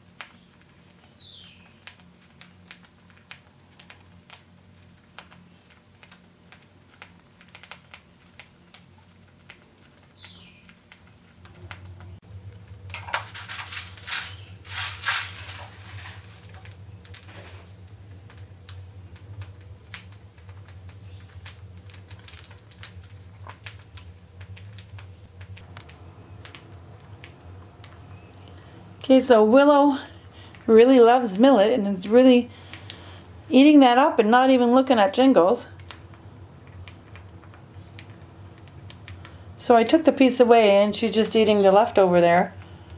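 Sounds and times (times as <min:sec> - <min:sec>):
rustling: 0:00.0 - 0:28.8
birds husking seeds clicks: 0:00.0 - 0:30.7, 0:32.6 - 0:33.2, 0:35.7 - 0:40.2, 0:42.4 - 0:42.9.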